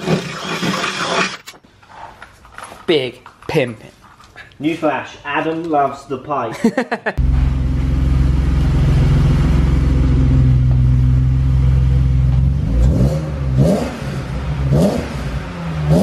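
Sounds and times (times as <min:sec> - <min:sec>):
car engine idling and revving: 0:07.2 - 0:16.0.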